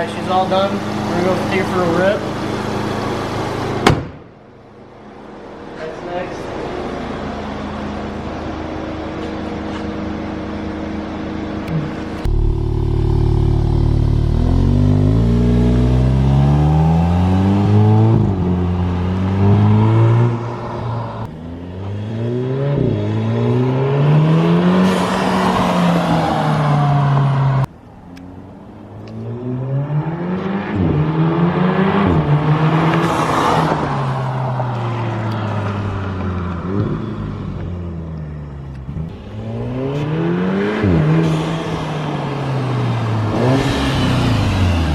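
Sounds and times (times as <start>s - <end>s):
car engine accelerating through gears: 11.6s - 27.7s, 29.0s - 44.9s.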